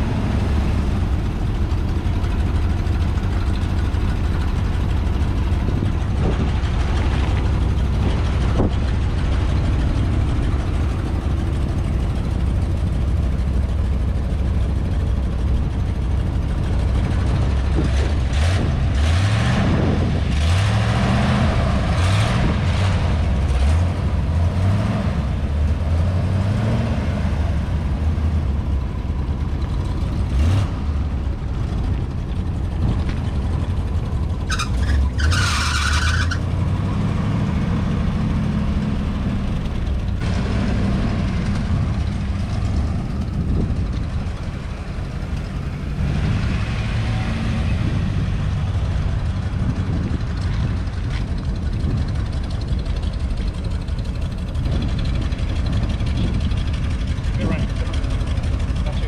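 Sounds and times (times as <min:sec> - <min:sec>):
vehicle engine revving: 0:00.0 - 0:13.5, 0:16.8 - 0:53.4.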